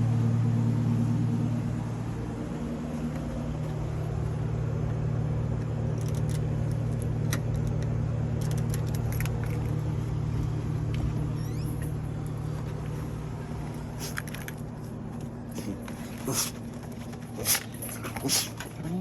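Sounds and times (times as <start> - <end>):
car engine running: 0.0 - 19.0
light clicks and jingles: 5.6 - 13.0.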